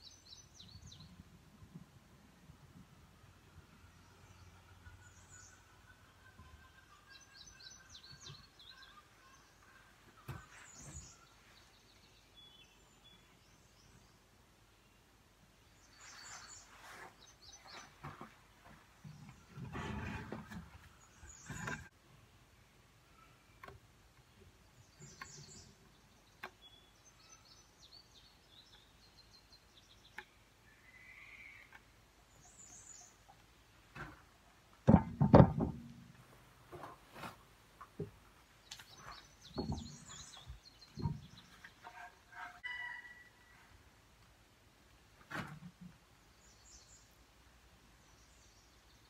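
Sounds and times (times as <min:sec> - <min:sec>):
faint bird chirps: 0:24.8 - 0:33.4.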